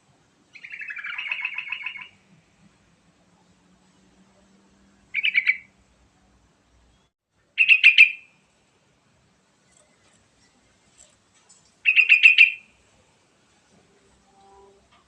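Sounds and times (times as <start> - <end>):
bulbul singing: 0.6 - 2.2, 5.1 - 5.7, 7.0 - 8.3, 11.8 - 12.7.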